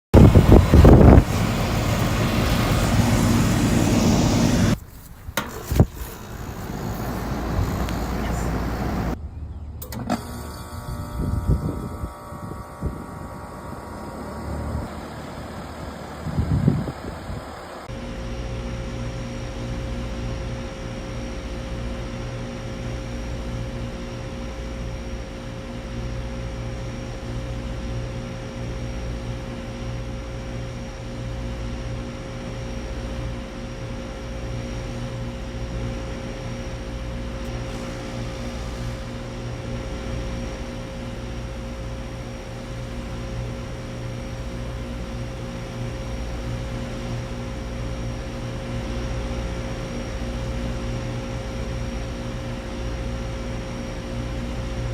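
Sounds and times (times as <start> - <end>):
compressor hum: 0.2 - 9.2, 9.8 - 54.9
condenser fan: 0.2 - 9.2, 9.8 - 54.9.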